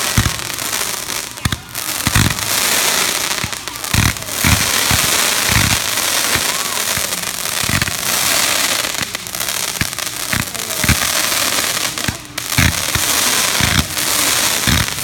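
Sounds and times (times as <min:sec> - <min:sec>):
deep fireworks booms: 0:00.0 - 0:15.0
fireworks crackling: 0:00.0 - 0:15.0.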